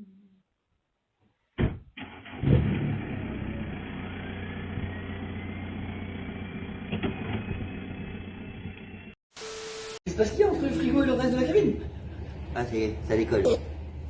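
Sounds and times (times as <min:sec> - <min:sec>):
engine running: 0:02.3 - 0:09.2.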